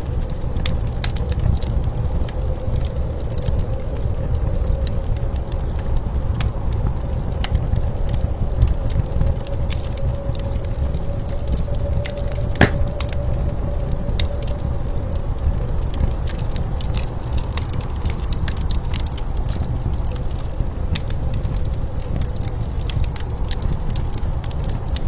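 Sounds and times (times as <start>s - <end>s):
wood fire crackling and popping: 12.6s - 13.0s.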